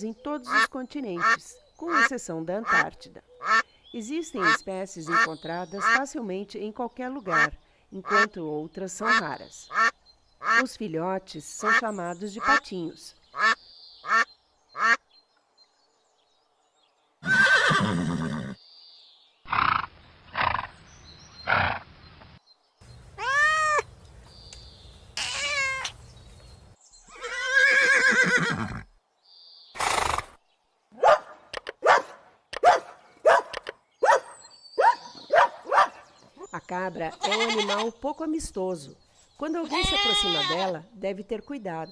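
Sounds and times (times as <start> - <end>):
rising and falling animal calls: 22.9 - 28.8
short animal calls: 23.1 - 24.0, 25.0 - 26.4.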